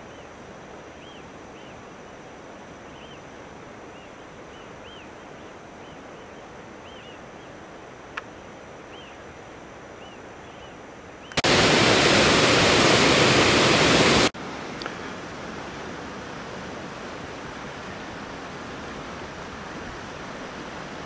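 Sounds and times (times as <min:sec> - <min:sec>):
waterfall rushing water: 0:00.0 - 0:21.0.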